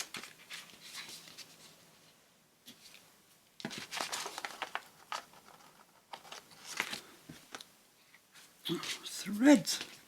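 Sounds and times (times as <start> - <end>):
paper rustling and crinkling: 0.0 - 1.8, 3.6 - 7.6.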